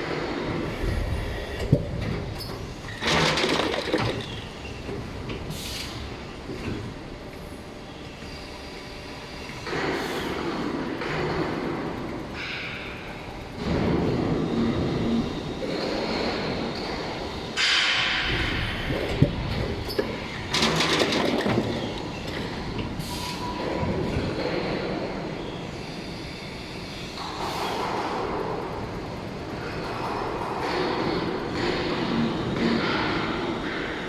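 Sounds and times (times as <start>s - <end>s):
injection moulding machine running: 18.3s - 27.2s.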